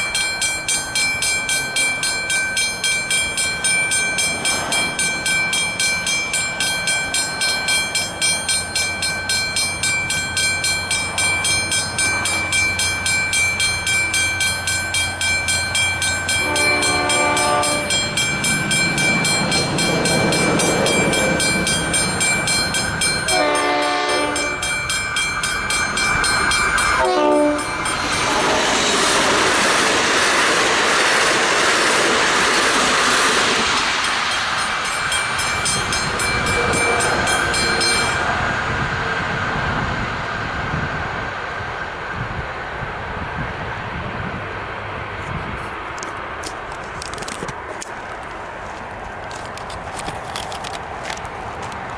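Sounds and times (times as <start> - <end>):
level crossing bell ringing: 0.0 - 28.3, 34.0 - 38.5
train wheels on rails: 0.0 - 51.9
train horn: 16.4 - 18.0, 23.3 - 24.6, 27.0 - 27.8, 36.5 - 37.4.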